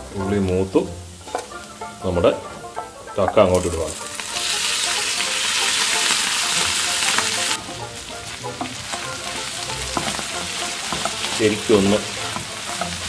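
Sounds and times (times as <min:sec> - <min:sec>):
meat sizzling in oil: 0:00.0 - 0:13.0
wooden spatula stirring: 0:00.2 - 0:13.0.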